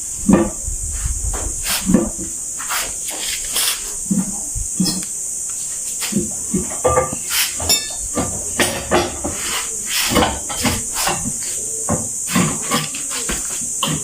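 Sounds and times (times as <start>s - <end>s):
steady high hiss: 0.0s - 14.0s
hand tools knocking and clattering: 6.0s - 14.0s.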